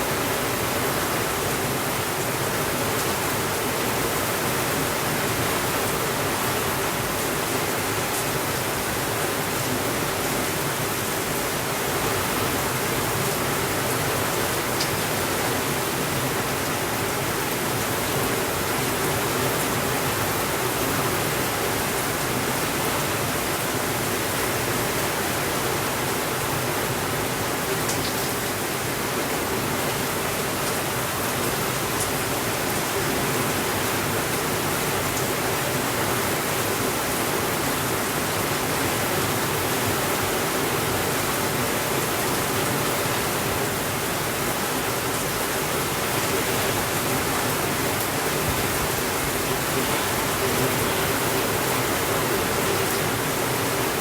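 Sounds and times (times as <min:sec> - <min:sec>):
heavy rain on a window: 0:00.0 - 0:54.0.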